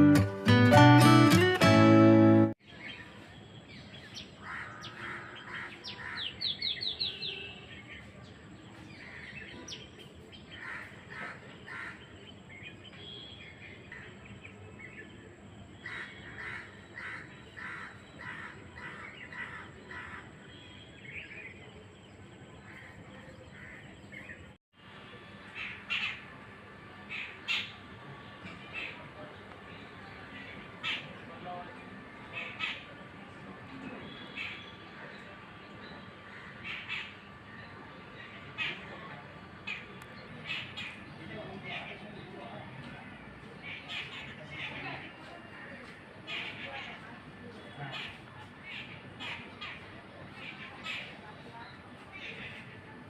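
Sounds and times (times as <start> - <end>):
birds chirping: 27.0 - 53.0.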